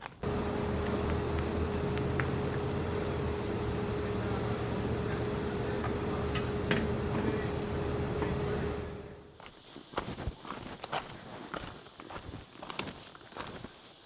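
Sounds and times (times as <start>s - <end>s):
motor running: 0.2s - 9.3s.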